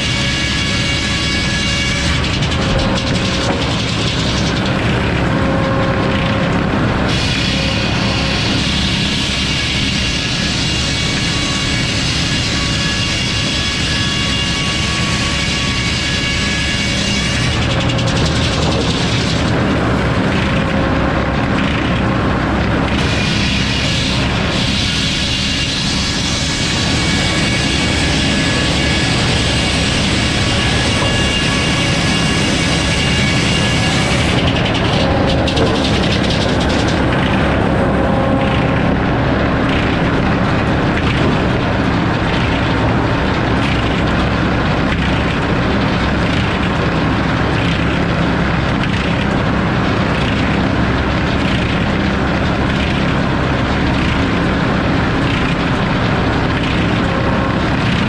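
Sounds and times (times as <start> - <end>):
sawmill engine drone: 0.0 - 58.0.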